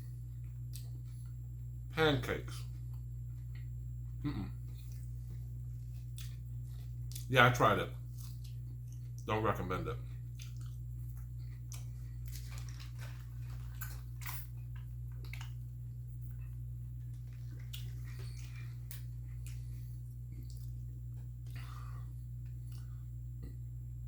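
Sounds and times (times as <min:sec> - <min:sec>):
steady low hum: 0:00.0 - 0:24.0
close chewing: 0:04.6 - 0:07.3, 0:10.0 - 0:22.9.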